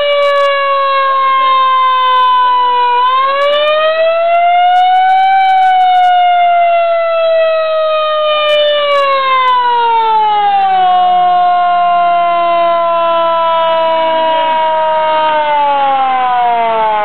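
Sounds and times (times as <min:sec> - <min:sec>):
fire truck siren wailing: 0:00.0 - 0:17.0.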